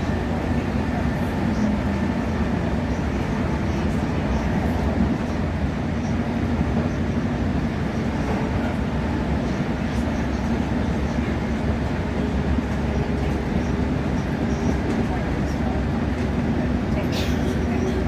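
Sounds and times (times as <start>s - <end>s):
train rumbling at speed: 0.0s - 18.0s.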